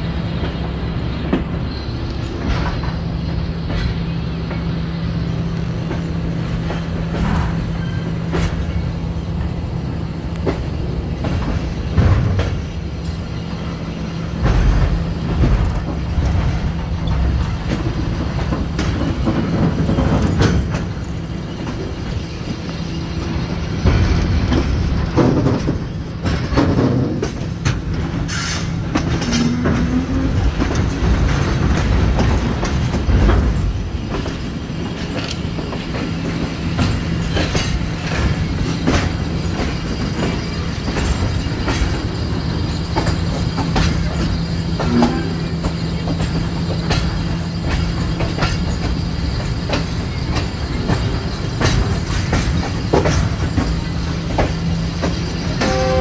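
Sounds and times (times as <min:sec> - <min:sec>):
train rumble: 0:00.0 - 0:56.0
wheels clacking over rail joints: 0:00.0 - 0:56.0
wheel squeals: 0:01.5 - 0:04.7, 0:07.3 - 0:08.9.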